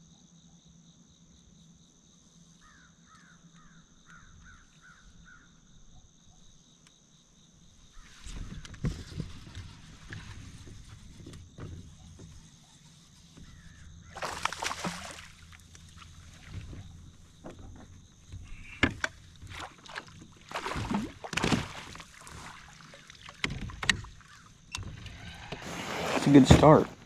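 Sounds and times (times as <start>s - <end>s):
water splashing against kayak: 14.0s - 17.8s, 18.4s - 24.6s, 25.2s - 27.0s.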